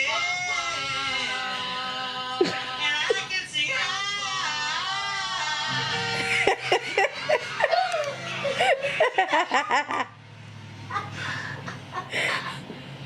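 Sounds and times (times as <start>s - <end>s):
bursts of laughter: 6.2s - 10.2s.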